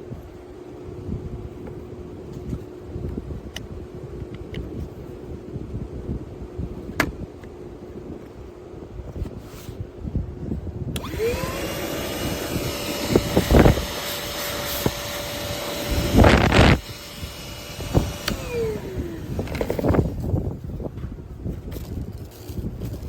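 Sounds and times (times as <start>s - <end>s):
shop vacuum motor whine: 10.9s - 20.4s
loud rushing surges: 11.2s - 20.0s.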